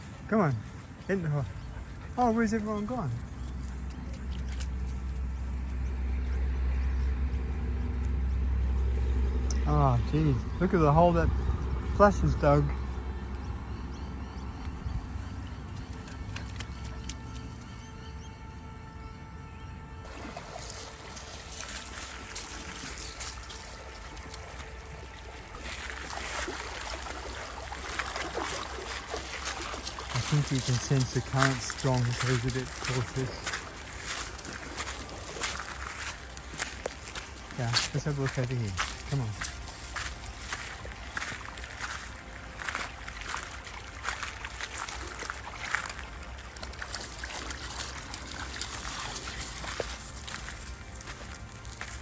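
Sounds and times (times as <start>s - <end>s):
stream water running: 0.0s - 18.6s, 19.8s - 52.0s.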